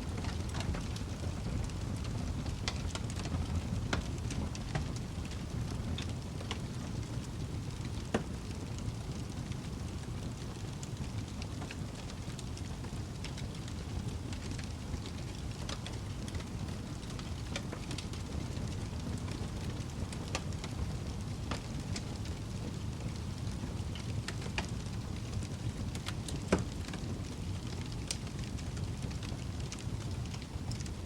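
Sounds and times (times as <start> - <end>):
fire crackling and popping: 0.0 - 31.0
low rumble of flames: 0.0 - 31.0.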